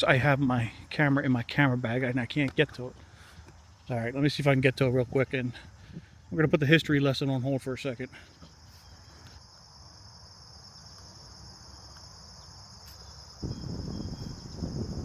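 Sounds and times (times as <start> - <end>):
high-pitched insect chorus: 0.0 - 15.0
low rushing noise on microphone: 13.4 - 15.0.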